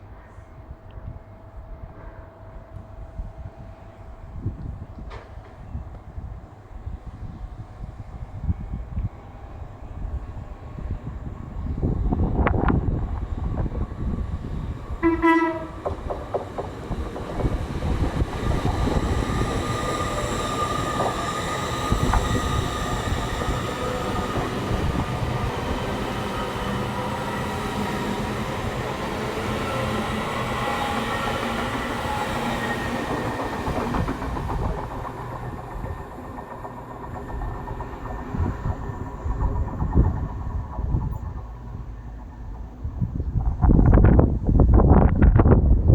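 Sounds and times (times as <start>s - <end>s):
train wheels on rails: 4.2s - 45.6s
train horn blast: 15.0s - 16.0s.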